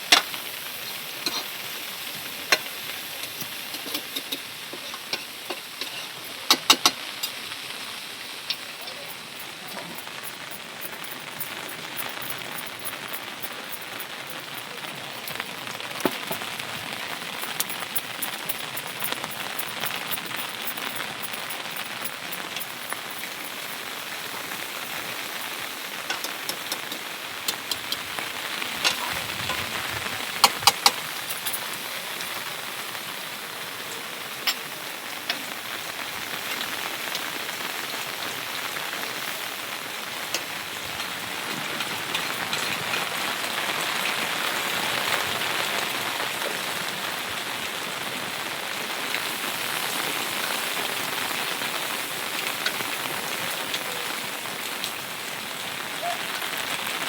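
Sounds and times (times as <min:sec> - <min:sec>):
steady rain hiss: 0:00.0 - 0:57.0
raindrop taps: 0:02.2 - 0:07.8, 0:08.4 - 0:23.8, 0:25.4 - 0:32.3, 0:40.1 - 0:46.6.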